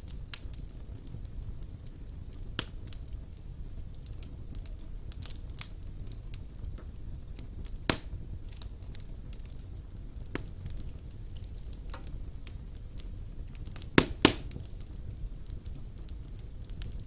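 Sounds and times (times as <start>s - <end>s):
fire low rumble: 0.0s - 17.0s
wood fire crackling and popping: 0.0s - 17.0s.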